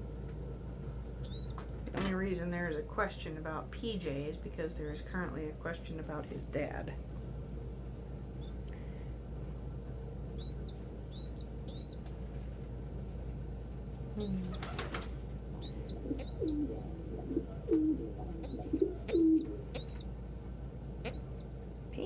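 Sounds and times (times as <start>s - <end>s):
pigeons cooing: 14.2s - 20.1s
wings flapping: 14.3s - 15.4s
high peeps: 15.6s - 20.1s.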